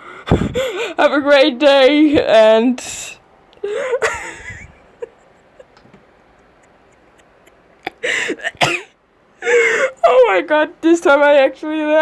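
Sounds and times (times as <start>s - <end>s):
person laughing breathlessly: 0.0s - 1.0s, 3.6s - 8.6s, 9.4s - 10.0s.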